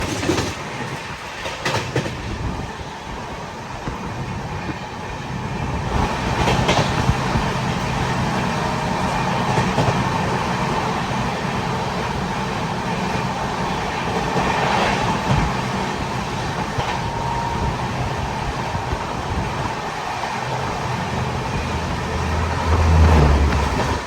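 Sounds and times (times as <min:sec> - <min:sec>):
train rumbling past: 0:00.0 - 0:24.0
wheels clacking over rail joints: 0:05.8 - 0:17.2, 0:18.0 - 0:24.0.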